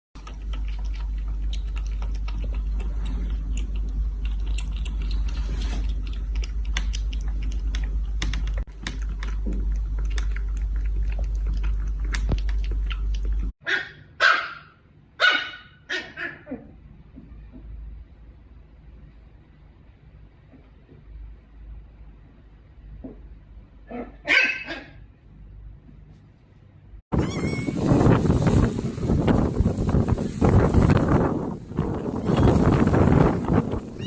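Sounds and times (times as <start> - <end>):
steady low hum: 0.2 - 13.5.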